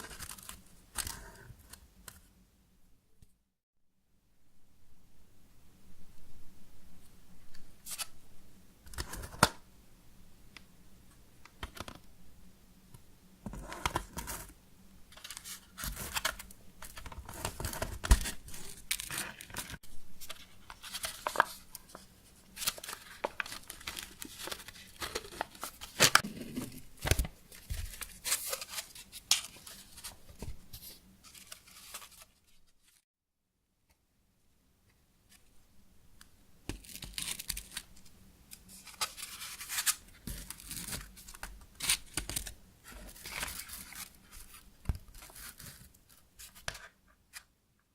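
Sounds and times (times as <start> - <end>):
tearing and crinkling handling: 15.2 - 33.0, 36.7 - 46.9.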